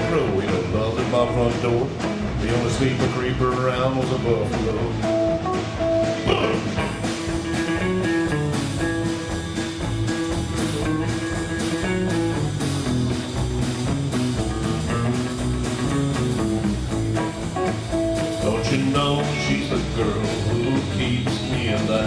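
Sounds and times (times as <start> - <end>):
bass guitar: 0.0 - 22.0
drum kit beat: 0.0 - 22.0
electric guitar lead: 0.0 - 22.0.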